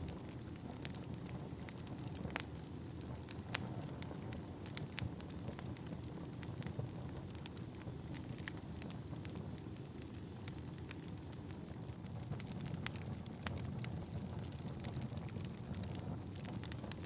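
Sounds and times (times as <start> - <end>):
wood fire crackling: 0.0 - 17.0
faint high whistle: 6.4 - 11.8.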